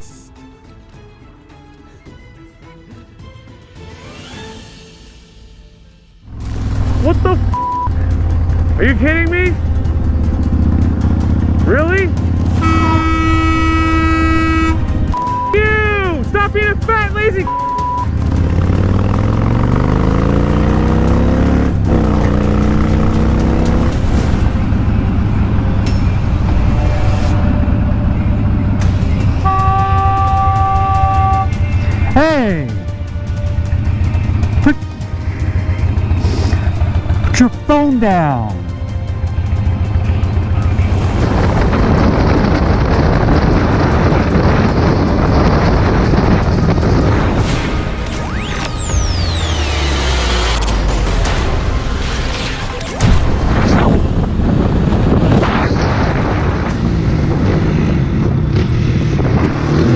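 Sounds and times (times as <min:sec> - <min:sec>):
vehicle engine passing by: 0:06.3 - 0:13.8, 0:18.1 - 0:29.4, 0:33.4 - 0:37.4, 0:38.6 - 0:52.2, 0:56.0 - 0:59.9
wind noise on microphone: 0:40.9 - 0:47.8, 0:53.4 - 0:59.9.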